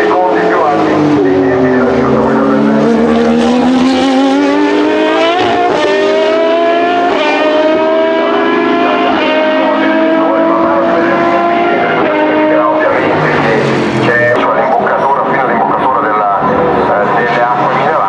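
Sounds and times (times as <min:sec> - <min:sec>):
race car engine accelerating: 0:00.0 - 0:18.0.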